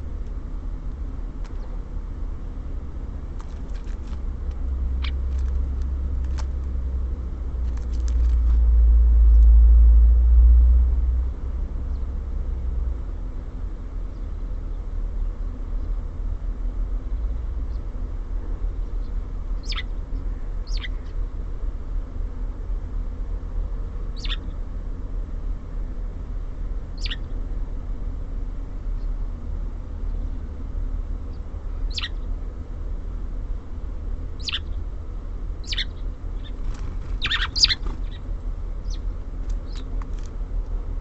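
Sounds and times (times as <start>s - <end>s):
low rumble: 0.0s - 20.7s
songbird calls: 4.9s - 6.6s, 18.7s - 21.2s, 24.1s - 24.6s, 27.0s - 27.4s, 31.3s - 32.3s, 34.4s - 34.9s, 35.6s - 40.1s.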